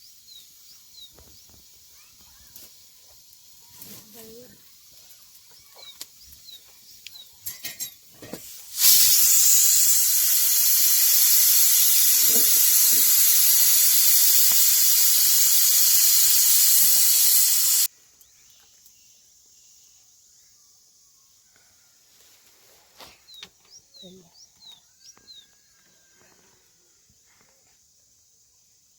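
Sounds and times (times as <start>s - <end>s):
loud steady hiss: 7.6s - 17.9s.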